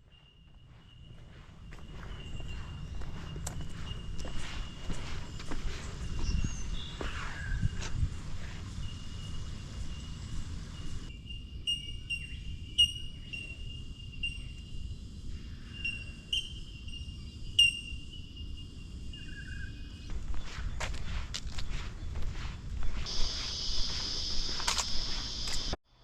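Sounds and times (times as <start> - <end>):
high-pitched insect trill: 0.0 - 25.8.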